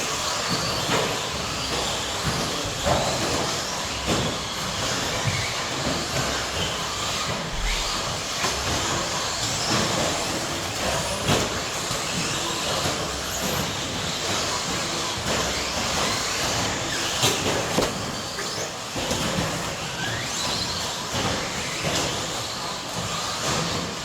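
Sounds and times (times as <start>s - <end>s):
electric model trucks racing: 0.0s - 24.0s.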